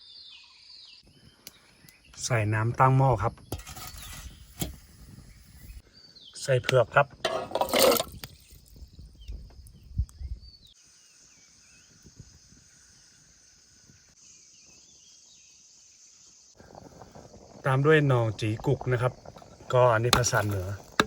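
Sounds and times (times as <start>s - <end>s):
faint insect drone with chirps: 7.8s - 21.0s.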